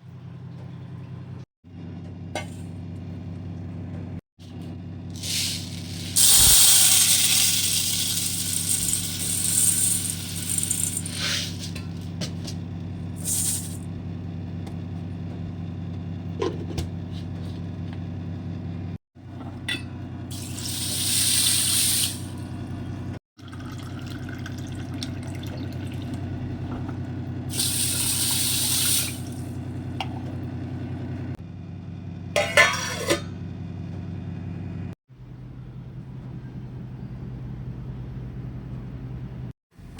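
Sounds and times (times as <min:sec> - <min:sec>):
water running from a tap: 0:05.2 - 0:11.6, 0:27.5 - 0:29.4.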